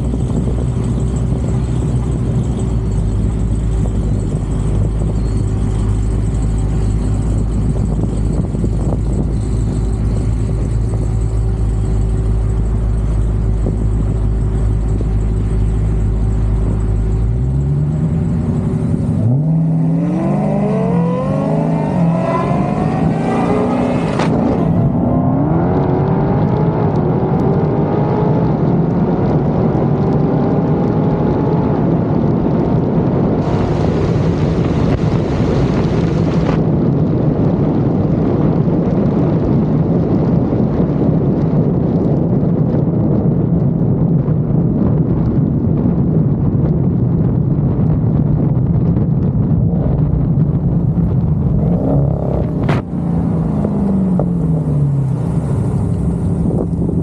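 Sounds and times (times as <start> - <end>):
car engine idling: 0.0 - 25.8, 49.2 - 57.0
car accelerating through gears: 17.6 - 32.4, 49.9 - 57.0.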